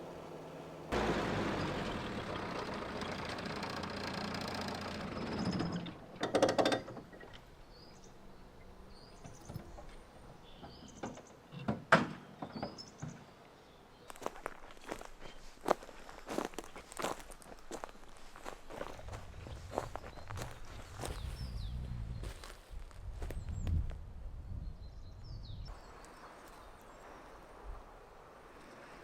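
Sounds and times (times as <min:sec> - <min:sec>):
car engine rumble: 0:00.0 - 0:06.2, 0:14.8 - 0:22.2
footsteps: 0:14.1 - 0:21.5.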